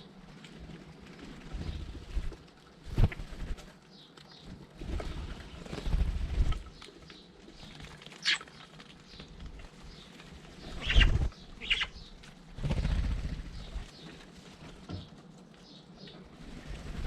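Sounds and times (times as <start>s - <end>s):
birds chirping: 3.4s - 17.0s.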